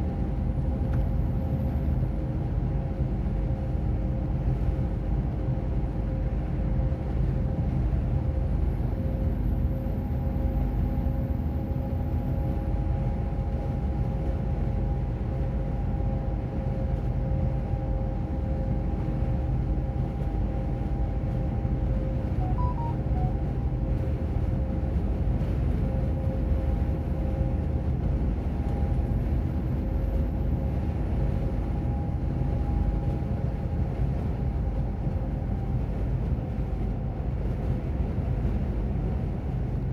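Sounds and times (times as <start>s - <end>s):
faint steady whine: 22.4s - 23.7s.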